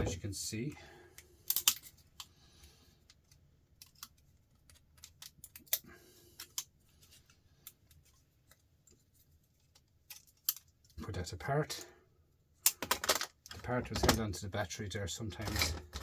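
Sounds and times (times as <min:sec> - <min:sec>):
plastic parts clicking and snapping: 0:00.0 - 0:02.3, 0:03.0 - 0:08.9, 0:09.6 - 0:11.0, 0:12.6 - 0:14.3.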